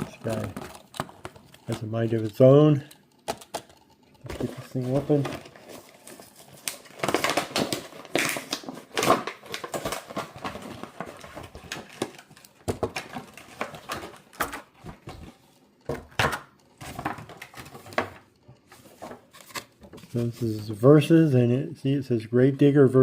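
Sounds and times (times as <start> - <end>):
packaging being torn open: 5.1 - 12.4.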